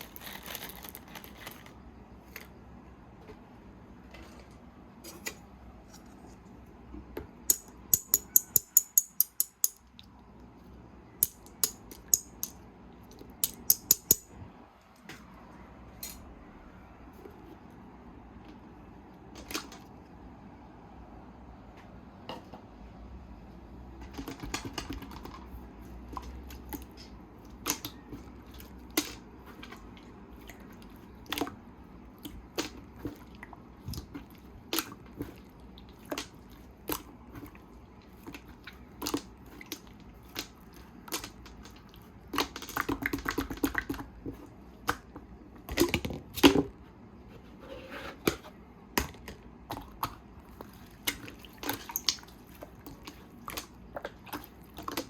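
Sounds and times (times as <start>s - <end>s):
small parts clicking and tapping: 7.4s - 10.1s, 11.2s - 12.6s, 13.2s - 14.3s.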